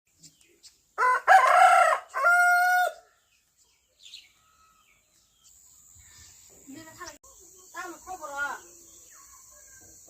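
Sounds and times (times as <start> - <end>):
rooster crowing: 1.0 - 3.1.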